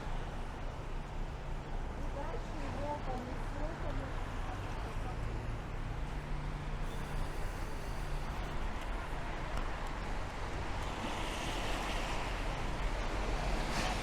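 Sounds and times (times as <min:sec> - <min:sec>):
traffic on wet streets: 0:00.0 - 0:14.0
vehicle passing on wet road: 0:10.2 - 0:14.0.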